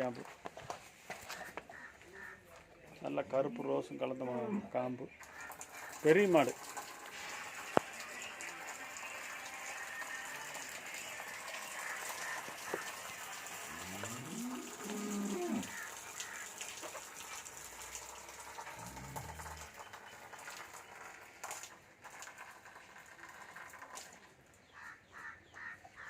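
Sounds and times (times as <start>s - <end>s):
cow mooing: 13.6s - 15.9s, 18.7s - 19.8s.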